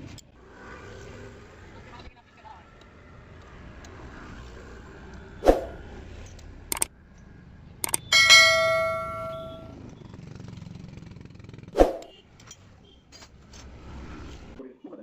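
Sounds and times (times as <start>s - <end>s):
light clicks: 6.4s - 6.9s, 7.8s - 8.0s
ringing metallic clang: 7.8s - 9.7s
knocks on metal tools: 7.9s - 9.6s.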